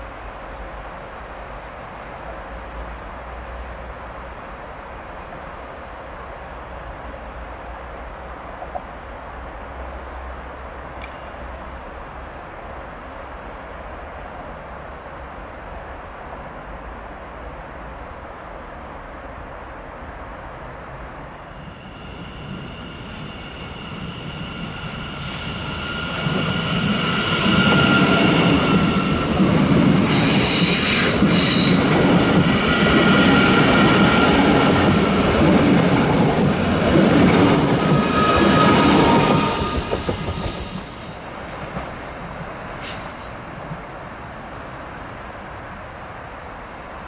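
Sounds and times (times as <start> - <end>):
electric train passing: 0.0 - 47.0
high wheel squeal: 21.6 - 32.0, 37.6 - 40.9.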